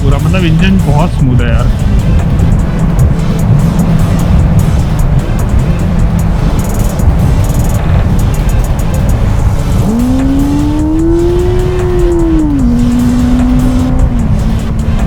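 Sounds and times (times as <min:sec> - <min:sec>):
wind rumble: 0:00.0 - 0:15.0
motorcycle engine under way: 0:03.0 - 0:15.0.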